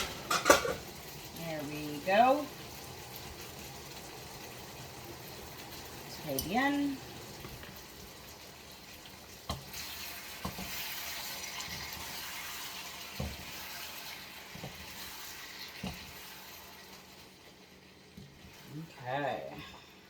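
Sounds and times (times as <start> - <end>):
kitchenware knocks and clinks: 0.0 - 0.8
kitchen tap running: 0.0 - 20.0.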